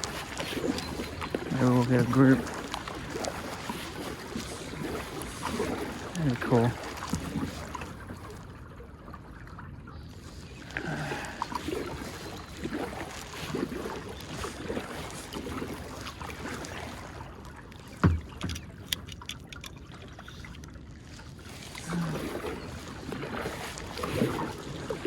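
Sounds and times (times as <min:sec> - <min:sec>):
moving water: 0:00.0 - 0:25.0
paddle strokes splashing water: 0:00.0 - 0:25.0.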